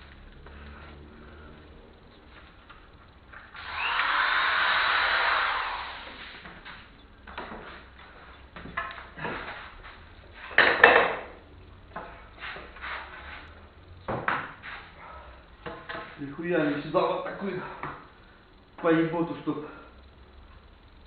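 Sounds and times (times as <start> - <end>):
power tool running on wood: 3.5 - 6.4
wooden knocks and clatters: 10.6 - 11.3.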